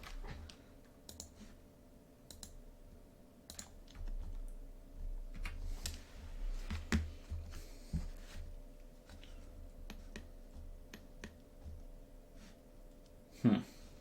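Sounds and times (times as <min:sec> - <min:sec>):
mouse and keyboard clicks: 0:01.1 - 0:01.4, 0:02.3 - 0:02.6, 0:03.5 - 0:04.4.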